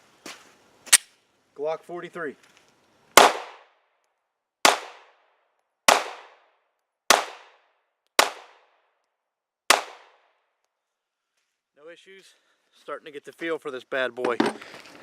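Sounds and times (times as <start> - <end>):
pistol shots with echo: 3.2 - 3.7, 4.6 - 5.2, 5.9 - 6.4, 7.1 - 8.7, 9.7 - 10.2.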